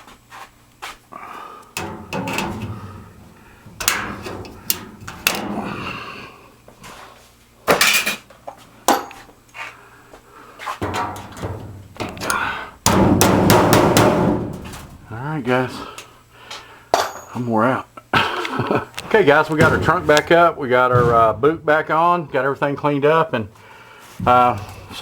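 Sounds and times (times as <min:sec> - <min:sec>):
sheet metal ductwork knocking and scraping: 0:01.8 - 0:05.9, 0:10.6 - 0:15.2, 0:19.0 - 0:23.0, 0:24.2 - 0:25.0.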